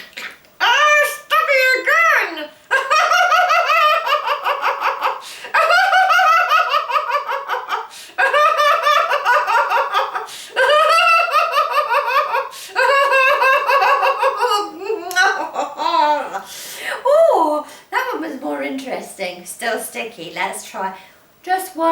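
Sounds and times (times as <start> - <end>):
woman laughing heartily: 2.7 - 16.5.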